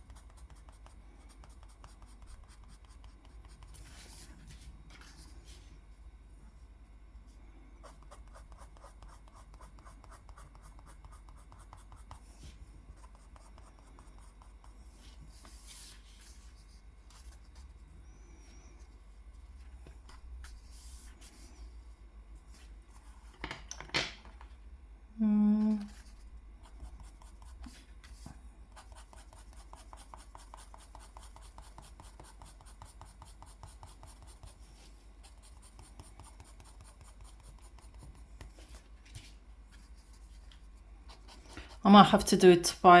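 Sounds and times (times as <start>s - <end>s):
drawing tool scratching paper: 7.8s - 12.2s, 26.0s - 27.8s, 28.7s - 38.6s.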